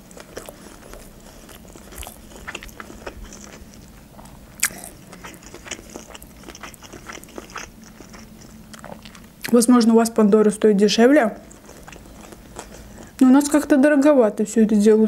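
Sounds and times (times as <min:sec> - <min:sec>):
chewing with wet mouth clicks: 0:00.0 - 0:09.6, 0:11.4 - 0:13.2.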